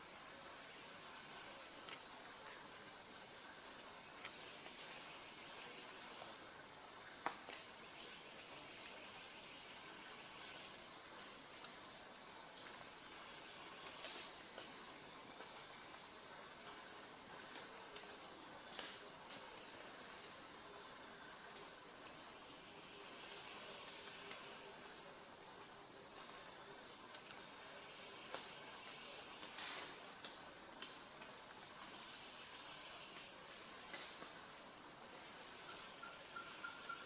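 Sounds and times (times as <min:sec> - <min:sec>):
insect chorus drone: 0:00.0 - 0:37.0.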